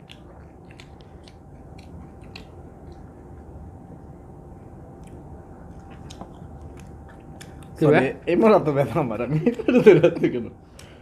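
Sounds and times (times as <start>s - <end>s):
people chewing food: 0.0s - 3.7s, 4.9s - 8.0s.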